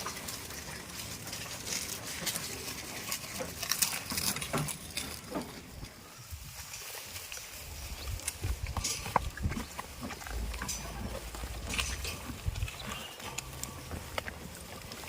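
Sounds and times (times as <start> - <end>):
goats clicking and knocking: 0.0 - 15.0
low rumble: 8.4 - 14.6.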